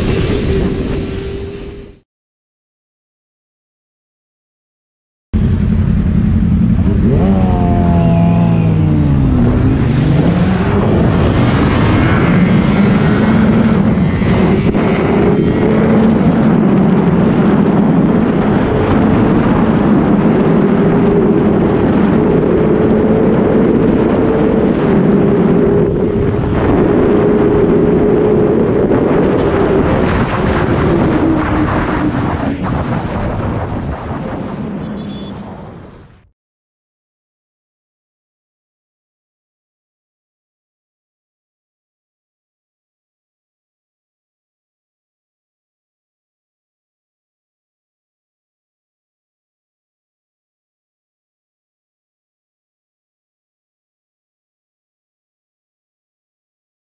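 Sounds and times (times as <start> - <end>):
motorcycle engine revving: 5.4 - 33.0.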